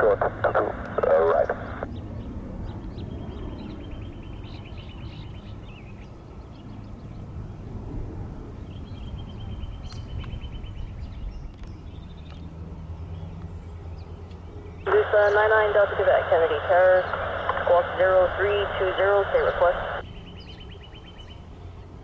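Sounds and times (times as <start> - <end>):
distant jet rumble: 0.0 - 5.5, 14.9 - 20.1.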